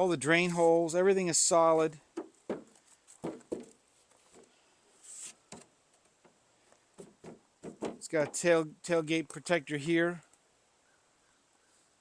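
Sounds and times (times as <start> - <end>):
short soft hiss: 3.9 - 5.7.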